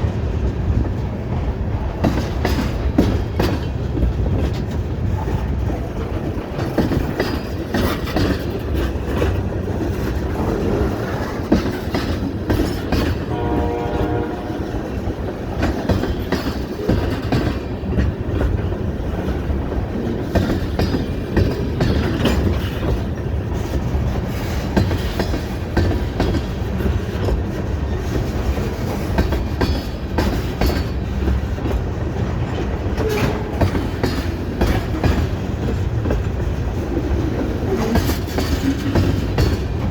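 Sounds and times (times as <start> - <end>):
train rumbling past: 0.0 - 39.9
wheels clacking over rail joints: 0.0 - 39.9
train horn blast: 13.2 - 15.0.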